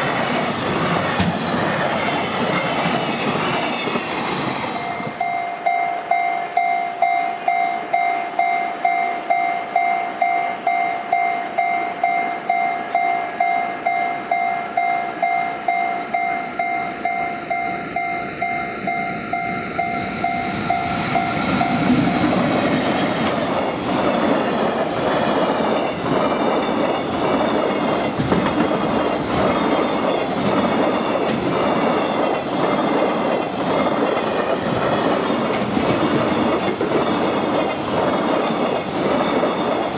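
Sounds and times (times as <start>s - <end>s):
train wheels clattering over rail joints: 0.0s - 5.3s, 20.5s - 39.9s
level crossing warning bell: 4.8s - 22.2s.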